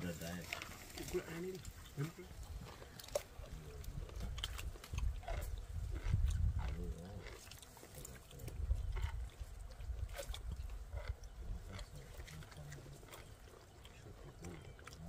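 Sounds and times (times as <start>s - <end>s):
wet chewing and slurping: 0.1s - 15.0s
wind rumble on microphone: 3.4s - 7.4s, 8.2s - 12.2s.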